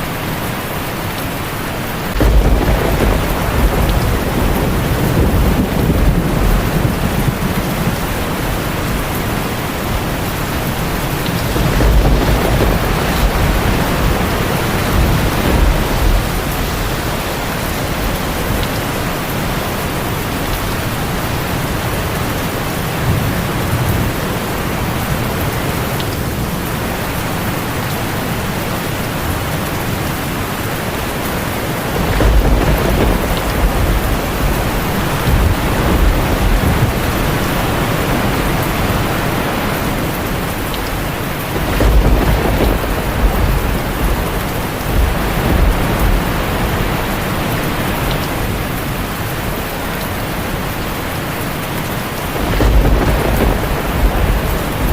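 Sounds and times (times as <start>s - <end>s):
heavy rain on a tin roof: 0.0s - 54.9s
low rolling thunder: 2.0s - 49.6s, 52.0s - 54.9s.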